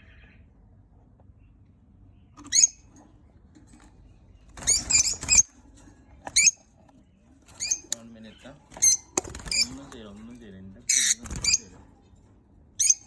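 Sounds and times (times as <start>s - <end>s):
bird chicks squeaky calls: 2.4s - 2.9s, 4.6s - 5.5s, 6.3s - 6.6s, 7.5s - 9.9s, 10.9s - 11.8s, 12.8s - 13.0s.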